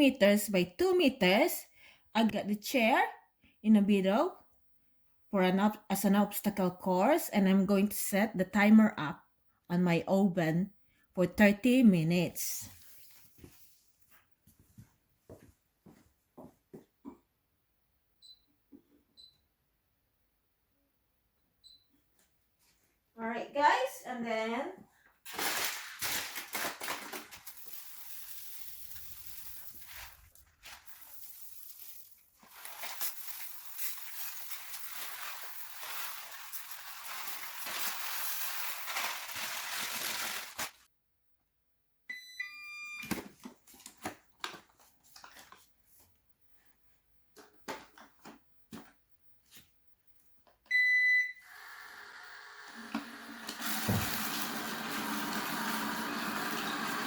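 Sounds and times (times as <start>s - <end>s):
rice scattering on a hard floor: 25.3s - 40.9s
robot vacuum humming: 51.5s - 57.0s.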